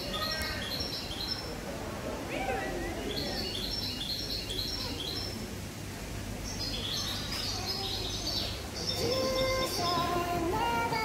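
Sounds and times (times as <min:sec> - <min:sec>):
small birds chirping: 0:00.0 - 0:01.6, 0:02.9 - 0:05.6, 0:06.4 - 0:10.4.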